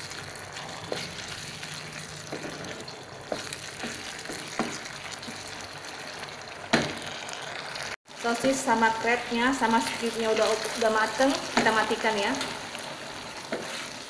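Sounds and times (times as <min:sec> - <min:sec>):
food sizzling in a pan: 0:00.0 - 0:14.0
wooden spatula knocking and scraping: 0:02.3 - 0:05.6, 0:13.5 - 0:13.9.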